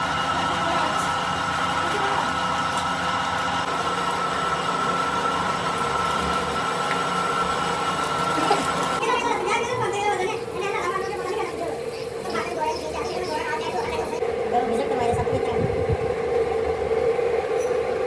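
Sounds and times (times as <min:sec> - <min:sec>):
metal lathe humming and whining: 0:00.0 - 0:09.0.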